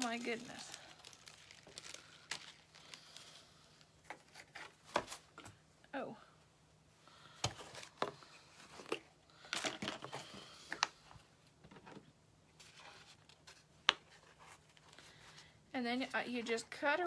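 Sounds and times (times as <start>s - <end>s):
rustling of craft materials: 0.0s - 5.7s, 7.4s - 17.0s.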